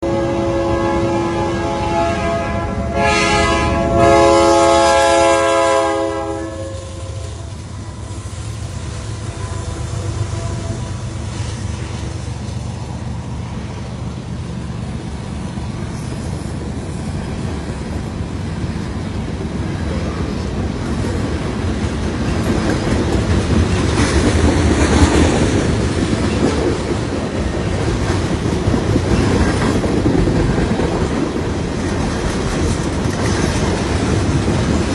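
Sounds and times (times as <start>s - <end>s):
train horn: 0.0s - 12.2s
train rumbling by: 0.0s - 34.9s
wheels clacking over rail joints: 7.2s - 34.9s.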